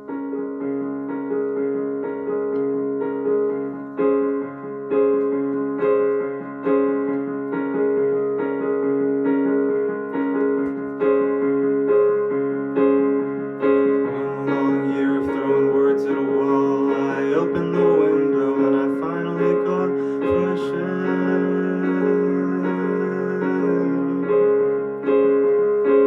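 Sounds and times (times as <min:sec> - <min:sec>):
keyboard playing sustained chords: 0:00.0 - 0:26.0.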